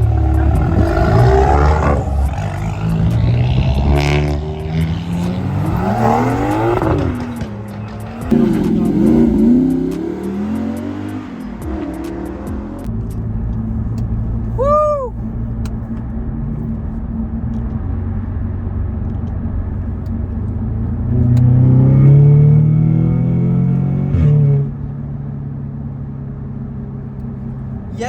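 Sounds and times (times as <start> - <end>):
car engine revving: 0.0 - 28.0
click: 21.2 - 21.5.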